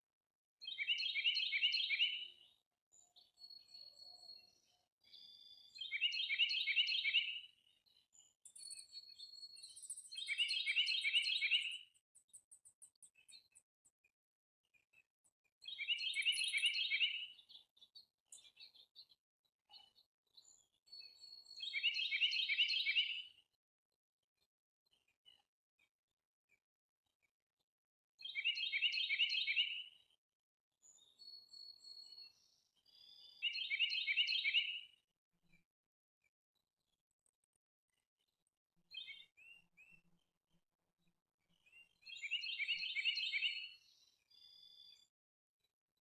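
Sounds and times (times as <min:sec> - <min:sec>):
songbird singing: 0:00.6 - 0:13.6, 0:15.6 - 0:19.1, 0:20.9 - 0:23.4, 0:28.2 - 0:29.9, 0:31.0 - 0:35.0, 0:38.9 - 0:40.0, 0:41.8 - 0:45.1.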